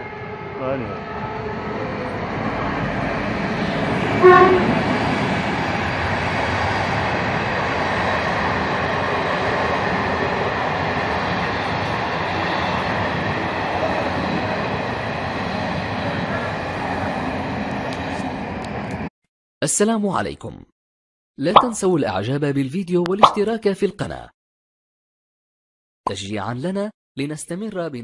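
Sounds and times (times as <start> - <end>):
train horn blast: 0.0 - 2.6, 4.1 - 5.0.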